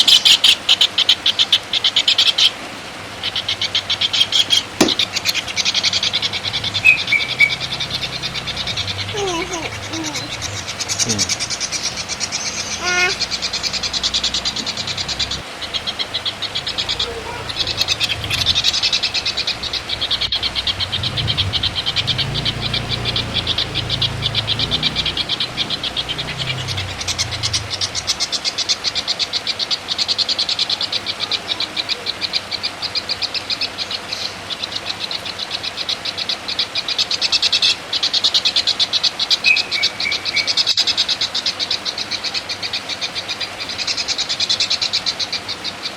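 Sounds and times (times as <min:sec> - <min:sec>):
songbird chattering trill: 0:00.0 - 0:02.6, 0:03.2 - 0:45.9.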